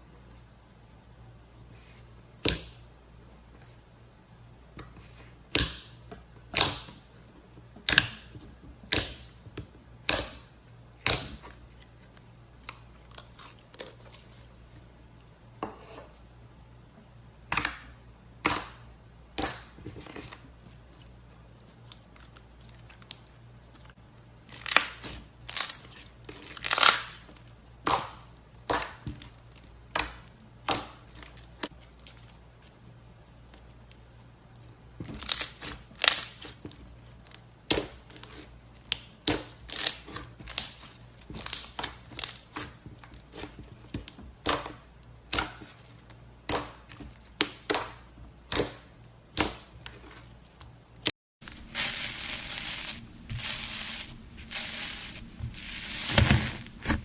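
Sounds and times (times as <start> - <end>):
slime crackling and popping: 51.4 - 57.0.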